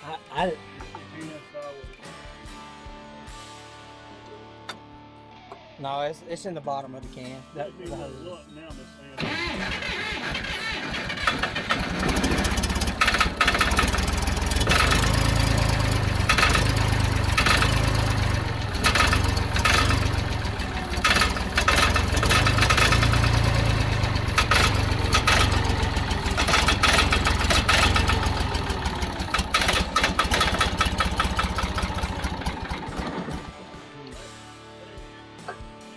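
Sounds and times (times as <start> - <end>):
bulldozer engine cranking and firing: 9.2 - 33.8.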